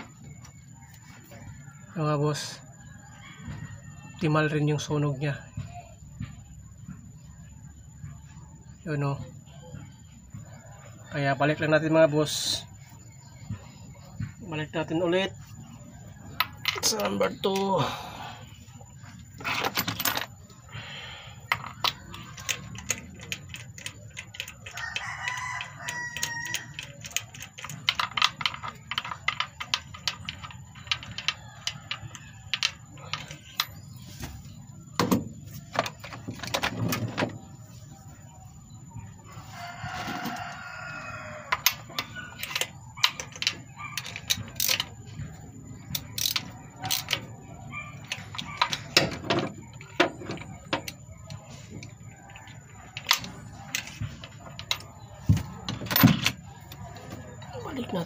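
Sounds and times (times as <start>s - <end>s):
rooster crowing: 0.9s - 4.6s, 24.5s - 27.0s, 39.3s - 42.5s.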